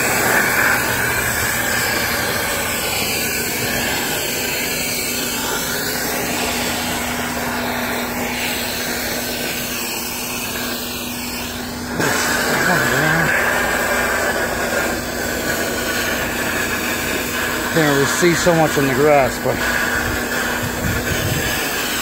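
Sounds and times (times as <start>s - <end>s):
motor hum: 0.0s - 22.0s
rush of air: 19.6s - 22.0s.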